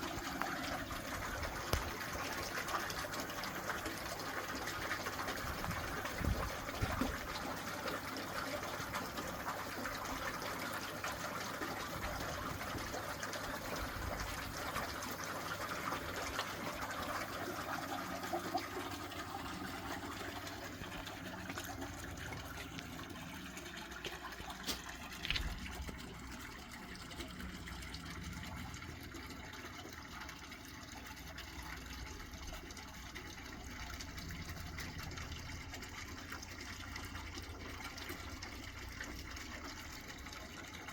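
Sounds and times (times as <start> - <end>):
water running into a tank: 0.0 - 40.9.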